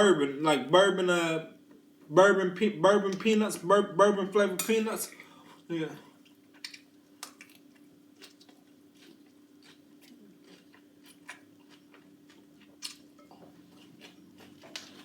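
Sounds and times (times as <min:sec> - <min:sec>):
steady low hum: 0:00.0 - 0:15.0
person chewing food: 0:06.1 - 0:15.0.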